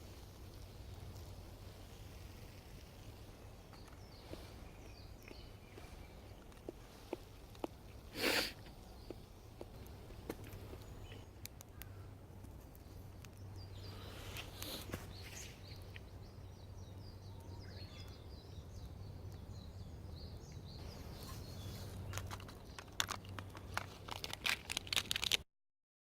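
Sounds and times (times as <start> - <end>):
sharp crackles and snaps: 0.0 - 16.1, 21.8 - 25.4
birds singing faintly: 0.0 - 25.2.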